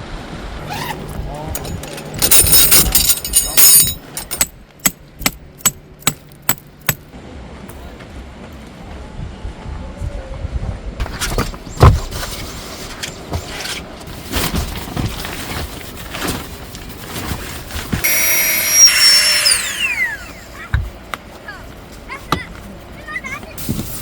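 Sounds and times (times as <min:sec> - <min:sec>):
knocks and clatters: 0:01.0 - 0:07.1
small electric motor whirring: 0:18.0 - 0:20.6.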